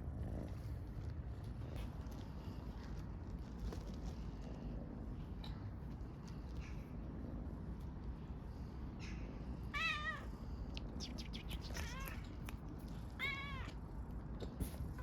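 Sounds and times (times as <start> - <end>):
kitten meowing: 9.8 - 10.3, 11.5 - 12.3, 13.2 - 13.8.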